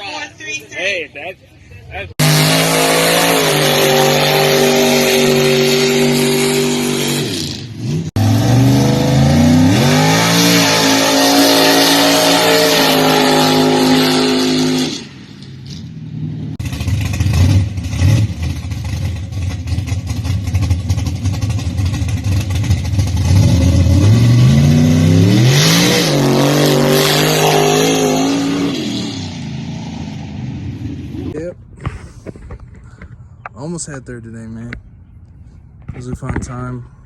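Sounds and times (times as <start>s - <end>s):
truck engine revving hard: 2.1s - 15.8s, 16.4s - 31.4s.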